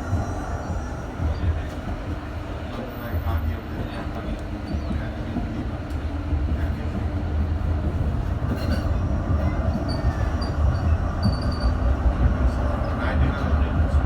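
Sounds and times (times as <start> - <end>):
tram rumbling: 0.0 - 14.0
tram wheels squealing: 8.5 - 13.1.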